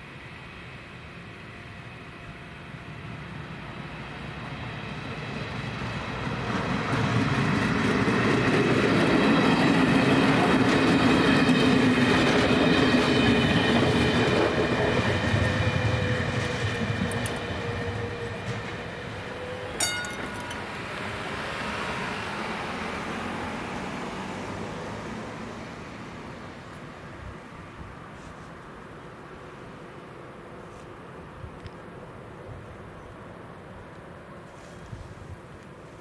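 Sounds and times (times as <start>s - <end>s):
diesel train passing: 0.0s - 34.4s
clicking train wheels: 5.6s - 21.7s
sharp clack with ring: 19.8s - 21.0s.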